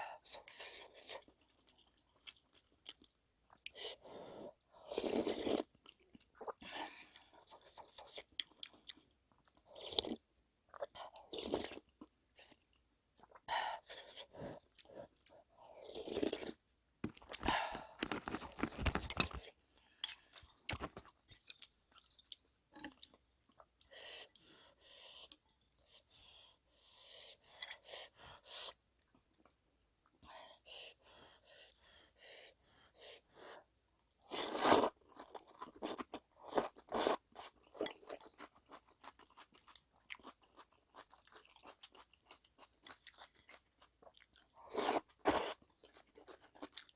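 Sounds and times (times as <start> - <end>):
crunching and chewing food: 0.3 - 3.8, 4.8 - 23.7, 34.1 - 46.9.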